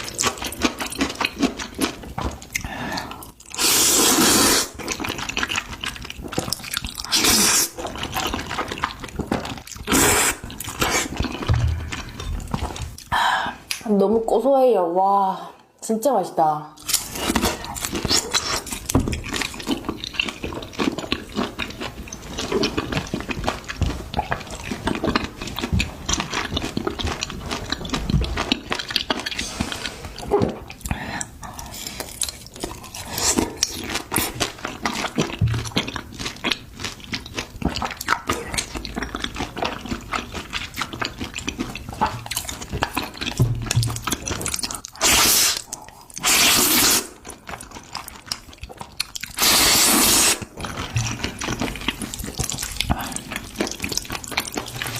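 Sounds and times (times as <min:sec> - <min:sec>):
wet slurping and chewing: 0:00.0 - 0:13.8, 0:16.8 - 0:54.9
mouth smacks and clicks: 0:37.2 - 0:54.9.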